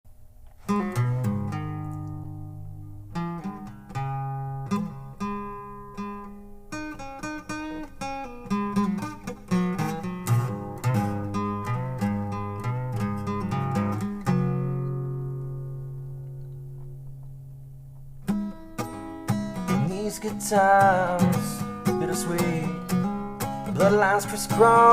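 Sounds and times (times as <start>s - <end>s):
acoustic guitar playing: 0.1s - 24.9s.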